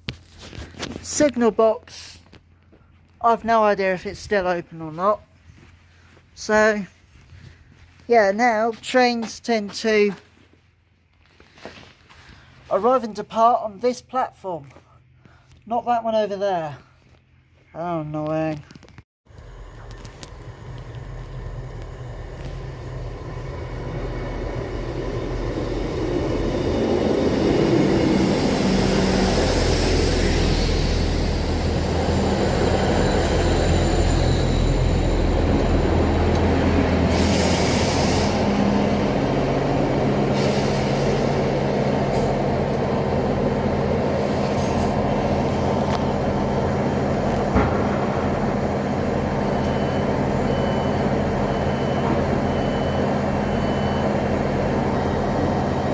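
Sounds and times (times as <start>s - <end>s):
diesel train engines running: 19.3s - 55.9s
high brake squeal: 26.6s - 36.4s, 37.0s - 38.7s, 40.3s - 41.4s.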